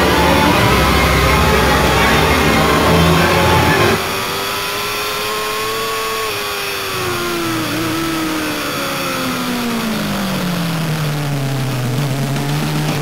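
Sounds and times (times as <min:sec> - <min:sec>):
racing motorcycle engine: 0:00.0 - 0:13.0.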